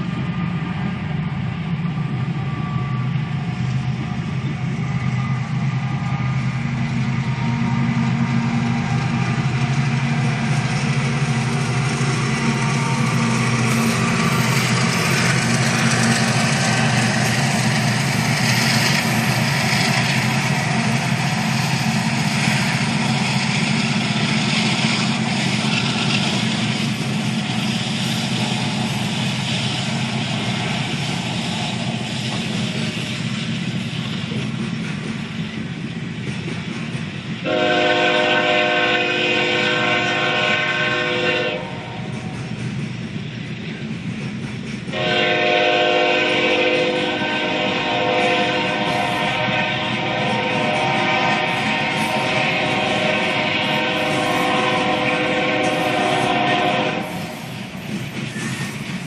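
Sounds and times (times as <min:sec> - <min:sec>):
train wheels rumbling on rails: 0:00.0 - 0:59.0
train horn chord: 0:37.4 - 0:42.0, 0:44.9 - 0:57.3.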